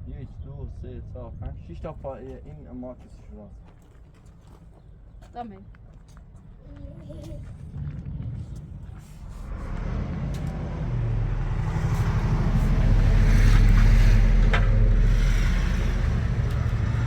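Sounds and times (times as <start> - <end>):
vehicle engine approaching: 7.2 - 17.0.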